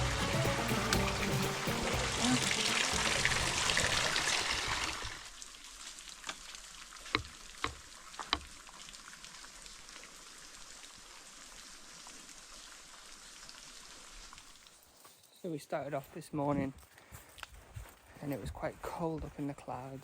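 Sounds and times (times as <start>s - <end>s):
flowing water hiss: 0.0s - 15.0s.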